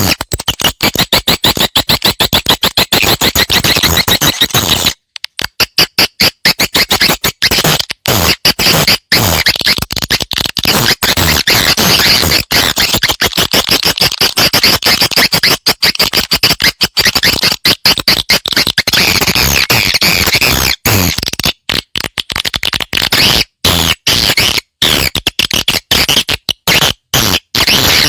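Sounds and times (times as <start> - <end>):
recorded swiftlet twittering: 0.0 - 5.0, 5.6 - 21.2.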